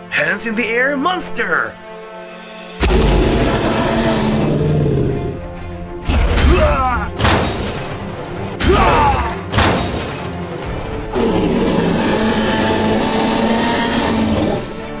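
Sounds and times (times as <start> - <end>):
dramatic music: 0.0 - 15.0
booming impacts: 5.3 - 10.2.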